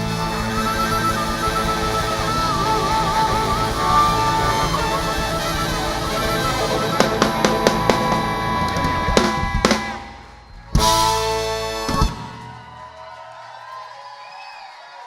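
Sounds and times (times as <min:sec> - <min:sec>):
drums hitting snare and bass drum: 0:00.0 - 0:12.8
rock band playing: 0:00.0 - 0:12.9.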